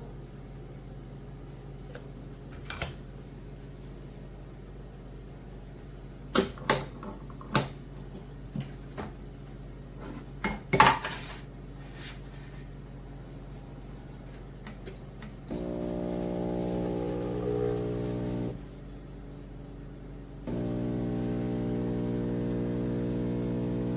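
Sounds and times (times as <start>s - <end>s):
espresso machine pump humming: 15.5s - 18.7s, 20.5s - 23.9s.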